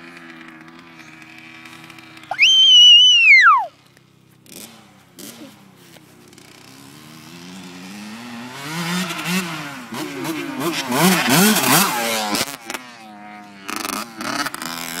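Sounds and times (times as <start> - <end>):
dirt bike engine revving: 4.4 - 15.0.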